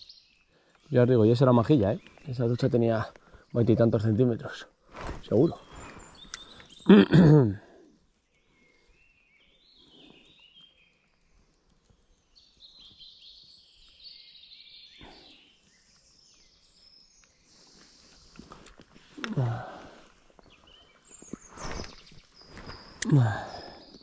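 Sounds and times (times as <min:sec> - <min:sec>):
small birds singing: 0:00.0 - 0:24.0
click: 0:06.2 - 0:06.7.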